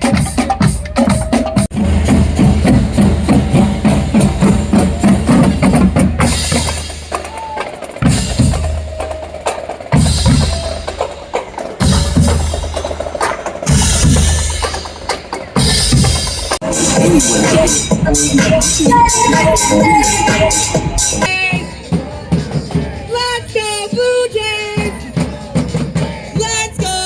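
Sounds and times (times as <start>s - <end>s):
fast drumbeats: 0.0s - 23.3s
heavy bass: 16.6s - 21.3s.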